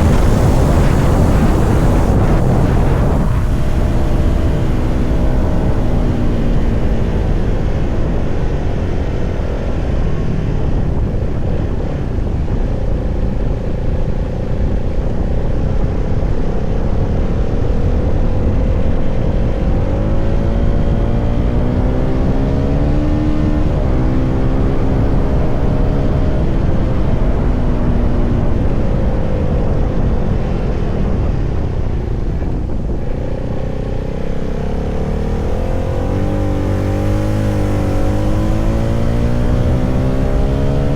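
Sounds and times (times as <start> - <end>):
motorcycle engine running: 0.0 - 13.8, 31.4 - 40.9
wind rumble on microphone: 0.0 - 40.9.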